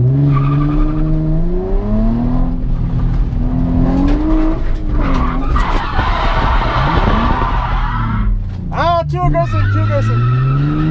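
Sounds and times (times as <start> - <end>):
car engine revving hard: 0.0 - 8.3
tyres squealing and skidding: 0.2 - 1.3, 4.2 - 8.4, 9.2 - 10.9.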